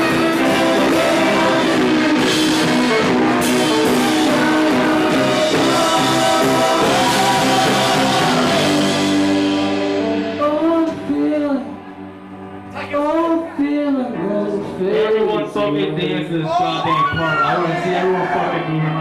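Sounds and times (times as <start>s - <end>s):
drum kit: 0.0s - 11.8s
person singing: 0.0s - 12.0s, 12.6s - 16.4s
electric guitars: 0.0s - 16.0s.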